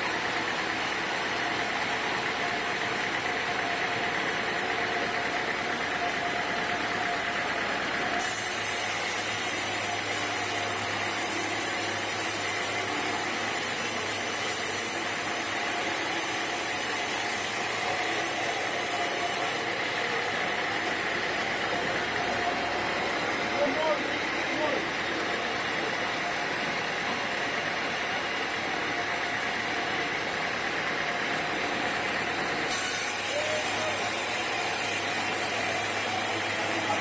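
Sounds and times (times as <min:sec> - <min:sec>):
sawmill machinery running: 0:00.0 - 0:37.0.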